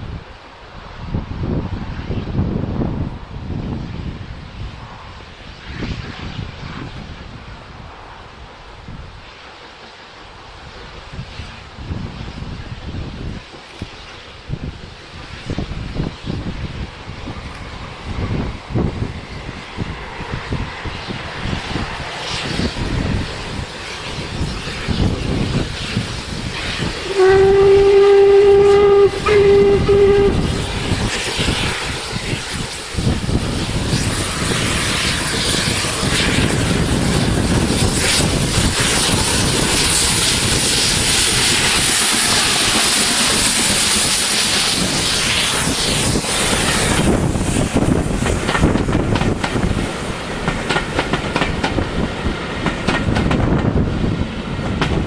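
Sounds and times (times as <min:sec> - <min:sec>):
wind buffeting microphone: 0:00.0 - 0:09.3, 0:10.3 - 0:55.0
steam locomotive passing: 0:00.0 - 0:55.0
steam whistle: 0:27.0 - 0:31.0.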